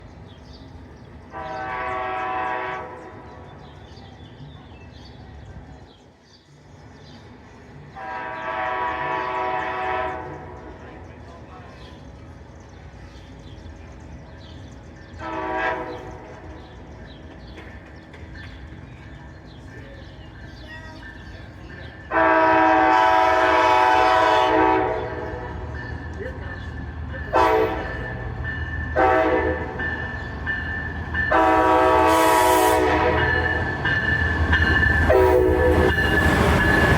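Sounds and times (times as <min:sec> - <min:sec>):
train rumbling on rails: 0:00.0 - 0:36.9
locomotive air horn blast: 0:01.3 - 0:03.4, 0:08.0 - 0:10.6, 0:15.2 - 0:16.5, 0:22.1 - 0:25.7, 0:27.3 - 0:28.2, 0:28.9 - 0:29.9, 0:31.3 - 0:33.7, 0:35.1 - 0:36.3.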